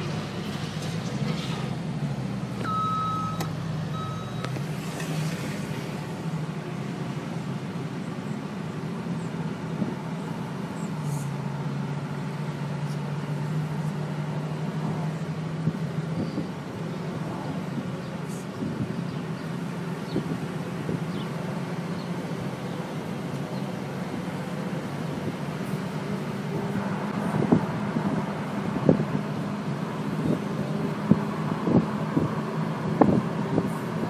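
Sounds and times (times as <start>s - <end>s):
car engine running from cabin: 0.0s - 34.0s
short electronic beeps: 2.6s - 4.6s.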